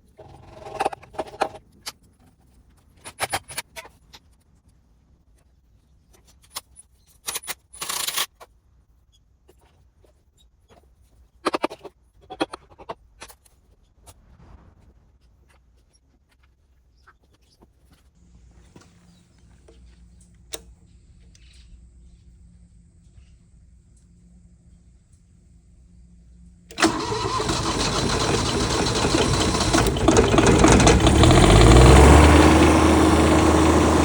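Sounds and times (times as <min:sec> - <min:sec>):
metal scraping rasp: 0:00.1 - 0:01.6.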